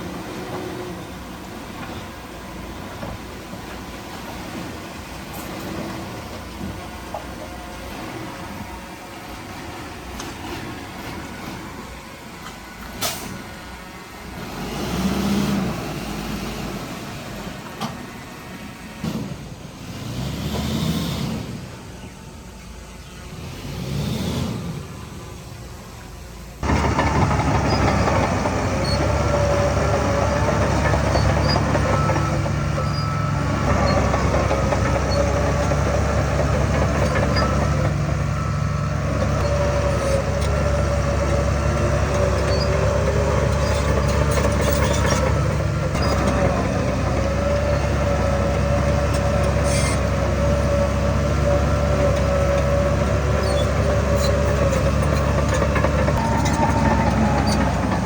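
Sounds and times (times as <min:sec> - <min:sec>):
heavy machinery engine running: 0:00.0 - 0:58.0
higher machinery whine: 0:24.6 - 0:58.0.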